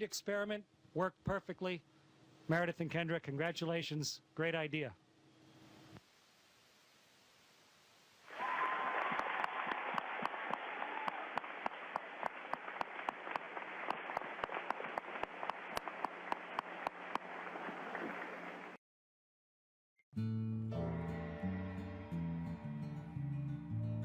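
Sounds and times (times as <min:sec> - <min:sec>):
crowd applauding: 0:08.3 - 0:18.8.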